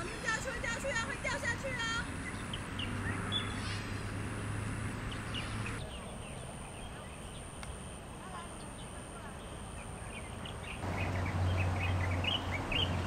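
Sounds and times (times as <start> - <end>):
bird chirps: 2.1 - 3.8, 5.1 - 13.0.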